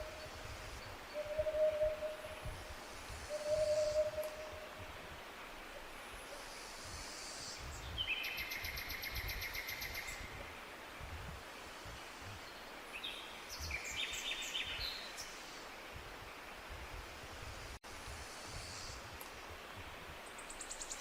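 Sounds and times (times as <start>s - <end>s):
forest background hiss: 0.0s - 21.0s
songbird trilling: 3.3s - 4.6s.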